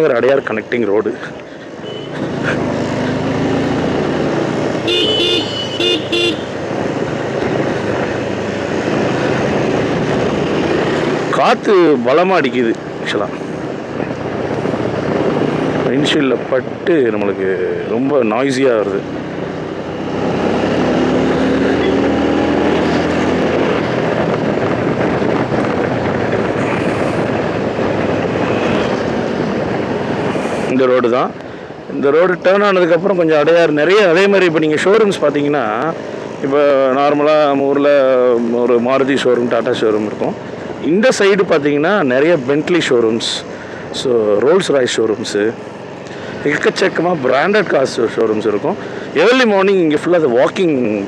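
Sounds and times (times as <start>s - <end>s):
wind and road noise: 0.0s - 51.0s
motorcycle engine hum: 0.1s - 51.0s
vehicle horn honking: 1.8s - 2.2s, 4.8s - 6.6s
wind buffeting windshield: 12.6s - 17.4s, 22.6s - 31.5s.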